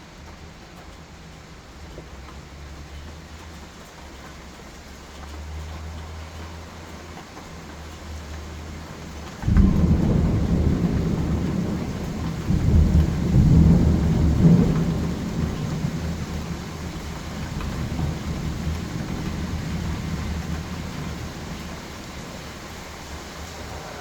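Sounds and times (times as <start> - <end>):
steady rain: 0.0 - 24.0
thunder rumbling: 9.4 - 24.0.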